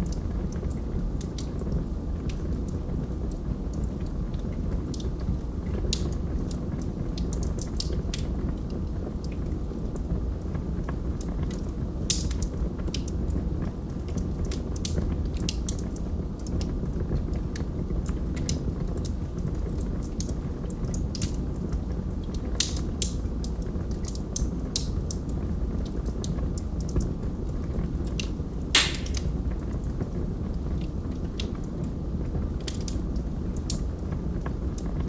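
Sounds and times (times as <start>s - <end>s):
logs crackling and popping: 28.8s - 29.3s
fire rumbling: 28.8s - 35.0s.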